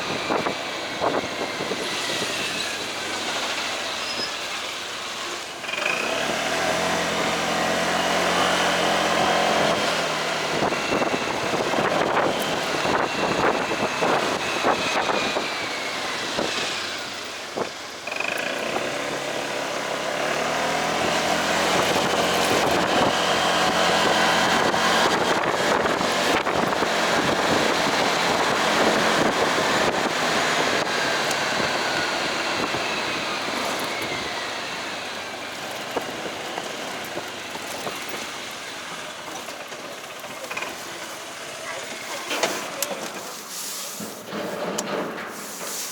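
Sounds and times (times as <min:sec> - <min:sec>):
wind rushing over microphone: 0:00.0 - 0:03.7, 0:06.2 - 0:17.8, 0:19.9 - 0:38.5
motorcycle engine running: 0:00.0 - 0:42.3.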